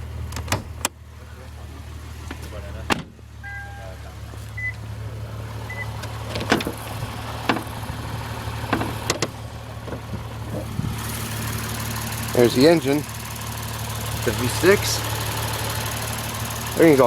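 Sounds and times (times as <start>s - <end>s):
car engine idling: 0.0s - 17.0s
hood latch clicks and clunks: 0.2s - 1.0s, 2.2s - 3.2s, 6.0s - 7.8s, 8.6s - 10.6s
short high beeps: 3.4s - 3.9s.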